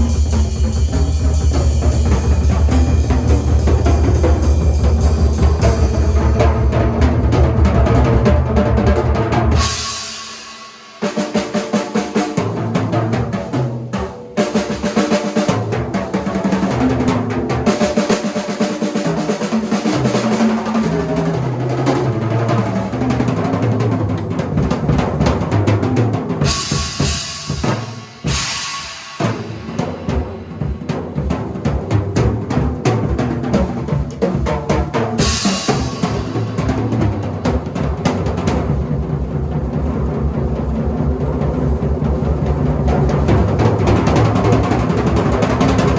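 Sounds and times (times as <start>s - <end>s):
cymbal crash: 0.0s - 7.4s, 9.6s - 12.4s, 26.4s - 31.0s, 35.2s - 37.3s
bass drum: 0.0s - 10.0s, 23.7s - 45.9s
drum rolls on snare and toms: 0.0s - 45.9s.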